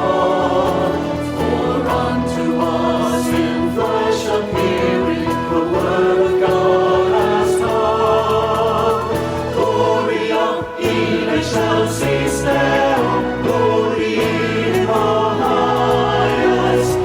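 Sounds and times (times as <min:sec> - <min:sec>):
choir singing held notes: 0:00.0 - 0:17.0.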